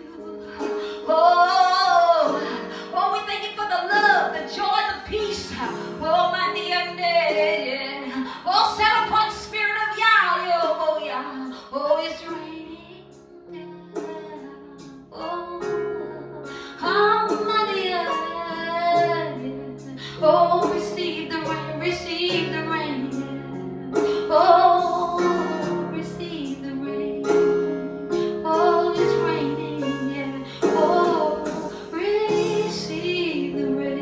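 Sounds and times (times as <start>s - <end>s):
woman singing: 0.0s - 34.0s
instrumental accompaniment: 8.8s - 34.0s.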